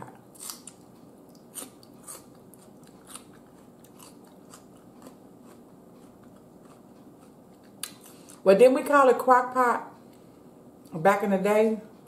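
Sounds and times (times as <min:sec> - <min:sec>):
person chewing food: 0:00.1 - 0:08.4.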